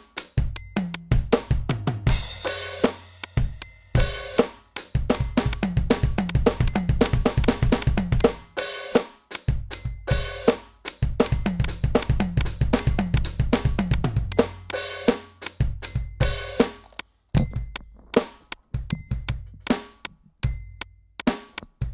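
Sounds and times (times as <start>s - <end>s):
hi-hat and cymbal: 0.0s - 16.8s
bass drum and snare hits: 0.4s - 8.6s, 11.0s - 20.6s.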